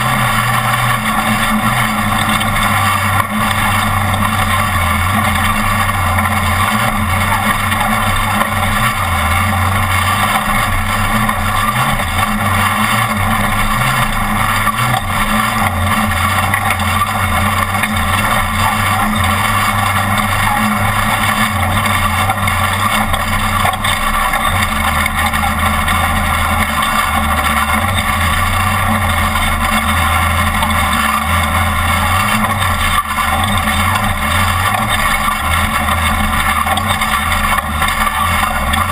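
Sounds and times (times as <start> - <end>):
constant rushing noise: 0.0 - 38.9
truck engine running at speed: 0.0 - 38.9.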